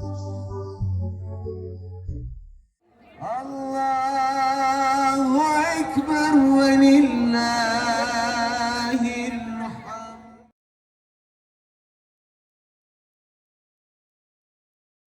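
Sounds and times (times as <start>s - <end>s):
person chanting long wavering notes: 3.2s - 10.4s.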